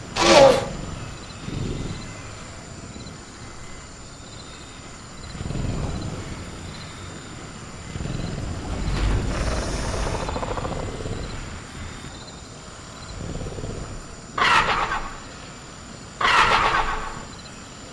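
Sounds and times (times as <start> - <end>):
crickets droning: 0.0 - 17.9
creature growling: 5.3 - 12.2.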